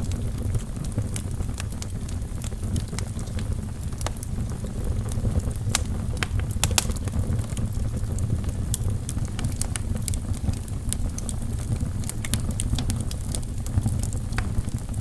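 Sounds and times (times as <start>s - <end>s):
fire flames rumbling: 0.0s - 15.0s
logs crackling and popping: 0.0s - 15.0s.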